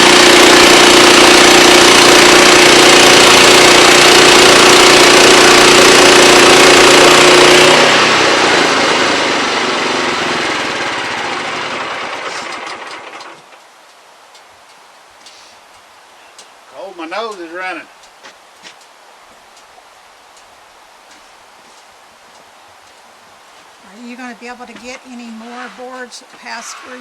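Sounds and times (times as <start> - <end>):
sawmill running: 0.0 - 13.6.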